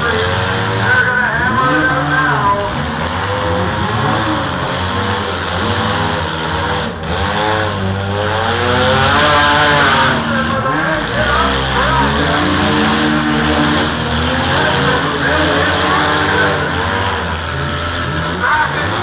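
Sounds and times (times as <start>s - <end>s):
small car engines revving: 0.0s - 19.0s.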